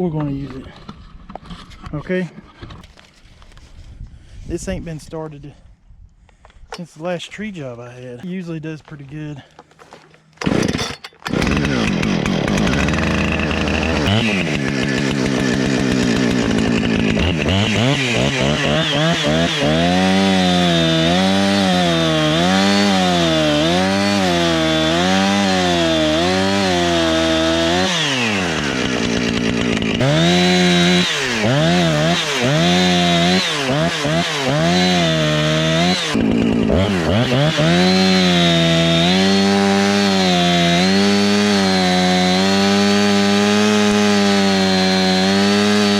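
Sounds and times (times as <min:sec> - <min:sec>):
chainsaw idling and revving: 0:10.4 - 0:45.9.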